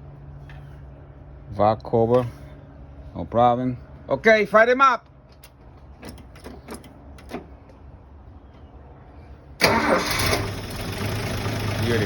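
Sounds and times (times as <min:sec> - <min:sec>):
car engine starting: 0:09.6 - 0:12.0.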